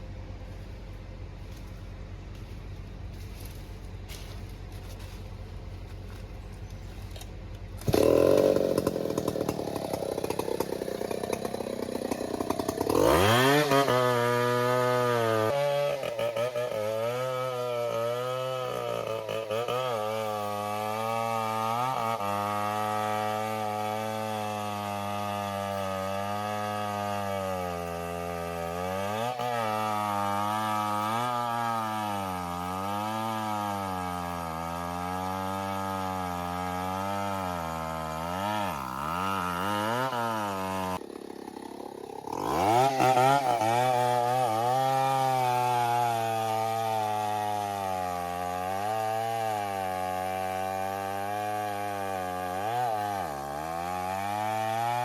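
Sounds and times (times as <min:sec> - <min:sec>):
engine running: 0:00.0 - 0:17.6.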